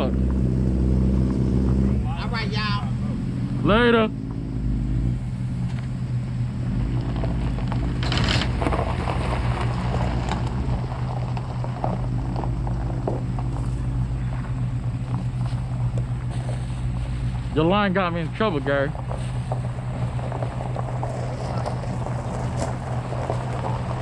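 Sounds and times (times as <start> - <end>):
vehicle engine droning: 0.0 - 24.0.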